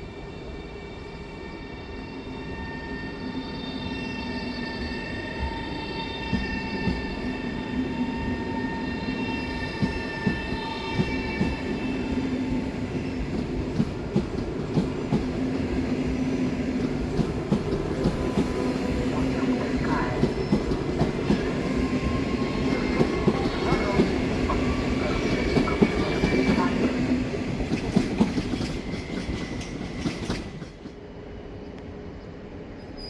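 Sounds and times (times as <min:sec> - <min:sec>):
train wheels clicking over rail joints: 0:27.6 - 0:31.0.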